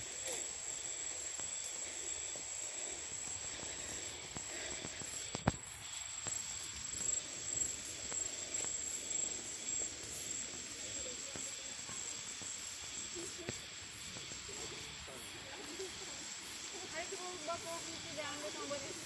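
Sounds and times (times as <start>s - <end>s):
high-pitched insect call: 0.0s - 19.0s
faint distant voices: 10.5s - 19.0s.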